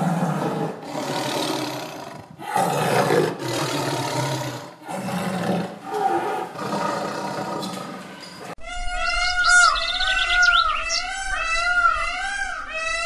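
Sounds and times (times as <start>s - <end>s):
big cat roaring and growling: 0.0s - 8.4s.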